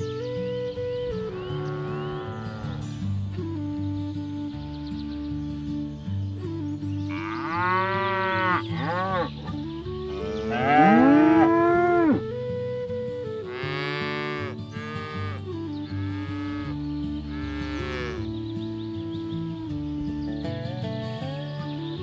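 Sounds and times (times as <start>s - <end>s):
background music with held notes: 0.0s - 22.0s
cattle mooing: 1.5s - 2.8s, 7.1s - 12.3s, 13.5s - 18.3s.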